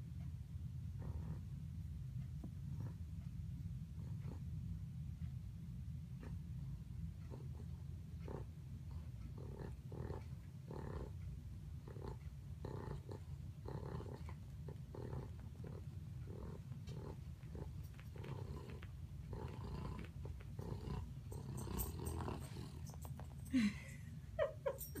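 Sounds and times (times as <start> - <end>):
dog snoring and snorting: 1.0 - 1.5, 2.6 - 3.1, 3.9 - 4.5, 6.1 - 23.4.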